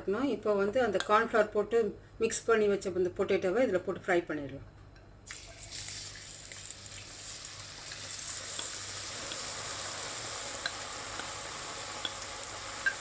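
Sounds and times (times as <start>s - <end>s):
potatoes deep-frying in oil: 5.3s - 13.0s.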